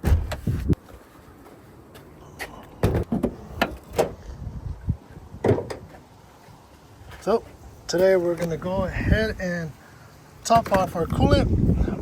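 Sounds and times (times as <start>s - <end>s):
sharp knocks and clunks: 0.0s - 0.6s, 2.8s - 4.2s, 5.4s - 6.0s.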